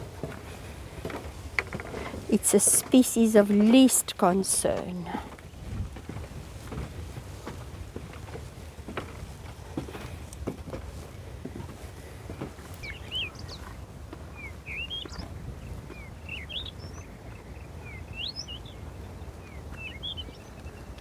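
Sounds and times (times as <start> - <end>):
small birds chirping: 11.8 - 21.0.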